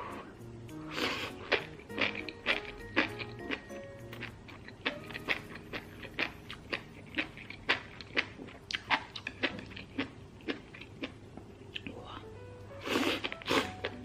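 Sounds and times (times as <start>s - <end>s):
person chewing food: 0.0s - 12.0s, 12.8s - 14.0s.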